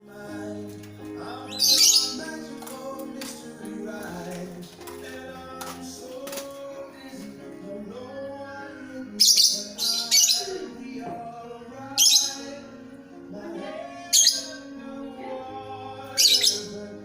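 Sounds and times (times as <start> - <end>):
background music: 0.0 - 17.0
bird chirping: 0.2 - 4.3, 7.8 - 13.0, 13.8 - 17.0.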